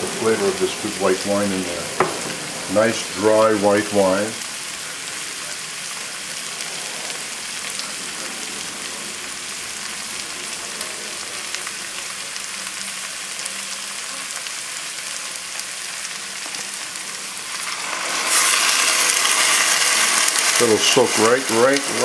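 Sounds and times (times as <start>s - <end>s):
wine poured into hot pan: 0.0s - 12.4s, 17.2s - 22.0s
food sizzling in a hot pot: 0.0s - 22.0s.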